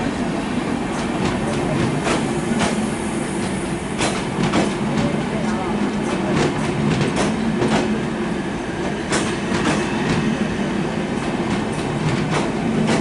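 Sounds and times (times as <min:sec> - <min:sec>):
train coaches rumbling past: 0:00.0 - 0:13.0
wheels clacking on rail joints: 0:03.4 - 0:08.0, 0:08.8 - 0:10.2, 0:11.4 - 0:13.0.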